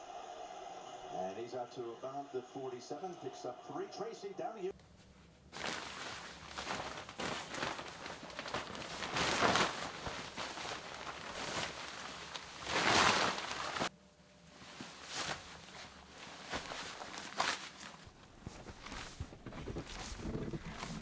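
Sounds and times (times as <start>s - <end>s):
footsteps crunching through snow: 5.6s - 13.9s, 14.7s - 21.0s.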